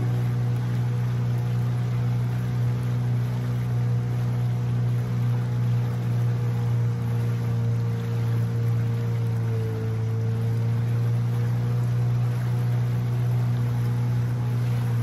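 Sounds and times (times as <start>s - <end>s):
boat motor droning: 0.0s - 15.0s.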